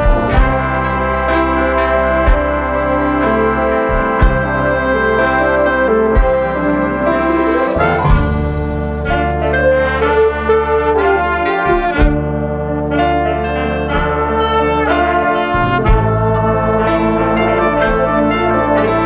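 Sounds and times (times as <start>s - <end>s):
brass ensemble music: 0.0s - 19.0s
cymbal crash: 7.6s - 9.4s.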